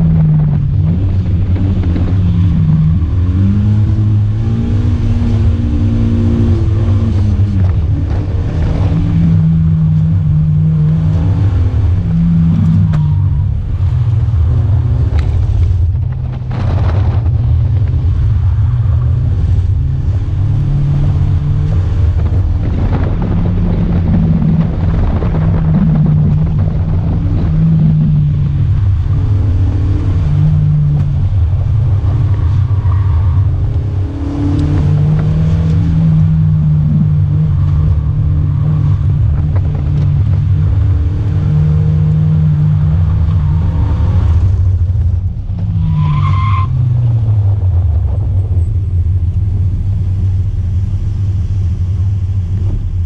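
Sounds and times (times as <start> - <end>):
tire squeal: 31.8 - 39.6, 45.6 - 48.8.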